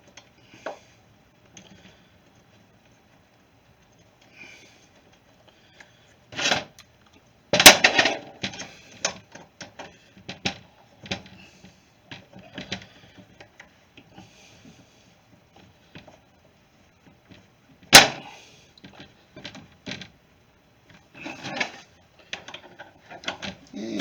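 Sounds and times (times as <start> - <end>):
metal parts clattering: 7.6 - 8.6.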